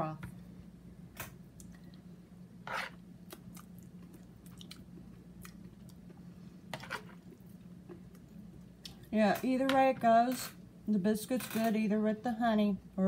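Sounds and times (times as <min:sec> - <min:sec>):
person chewing: 0:03.2 - 0:09.1.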